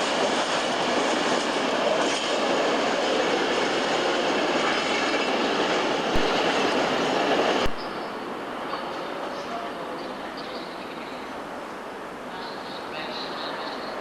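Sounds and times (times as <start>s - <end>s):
train wheels rumbling on track: 0.0s - 10.8s.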